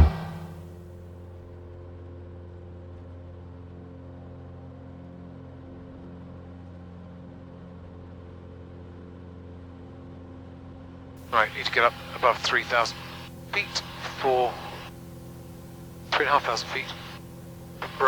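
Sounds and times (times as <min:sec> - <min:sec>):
propeller aircraft engine droning: 0:00.0 - 0:00.7, 0:11.2 - 0:18.0.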